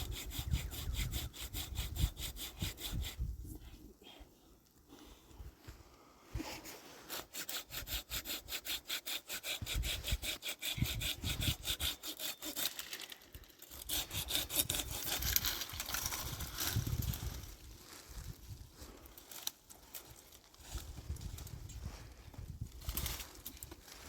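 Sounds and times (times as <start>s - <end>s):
fast rhythmic rasping strokes: 0.0s - 3.2s, 7.3s - 12.7s, 13.7s - 15.3s.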